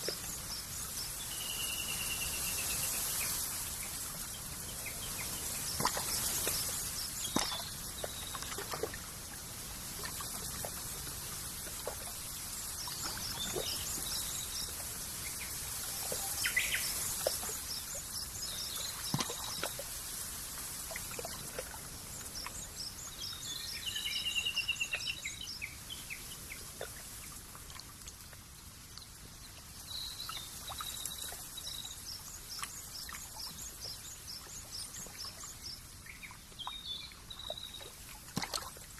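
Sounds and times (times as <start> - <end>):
small birds chirping: 0.0 - 9.0, 11.9 - 20.0, 29.8 - 38.0
steady high hiss: 0.0 - 27.6
trickling water: 0.0 - 38.9
water drips: 2.8 - 23.8, 26.5 - 38.9.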